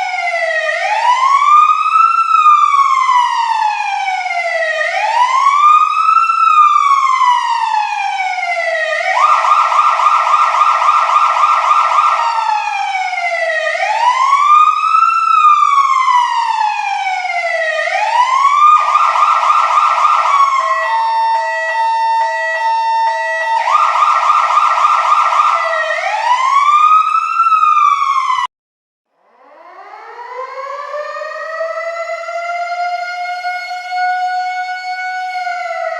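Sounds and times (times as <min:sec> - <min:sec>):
electronic siren wailing and yelping: 0:08.9 - 0:16.5, 0:17.8 - 0:28.5.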